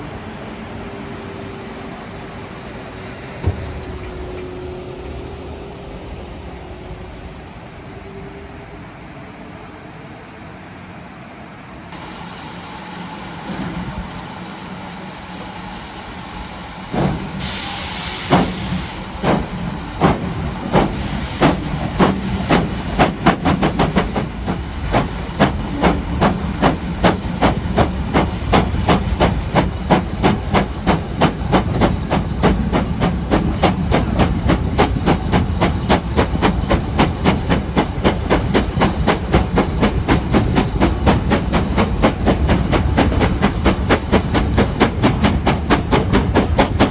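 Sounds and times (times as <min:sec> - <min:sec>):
steam locomotive exhaust beats: 0:00.0 - 0:09.6, 0:11.9 - 0:46.9
steam hiss: 0:11.9 - 0:46.9.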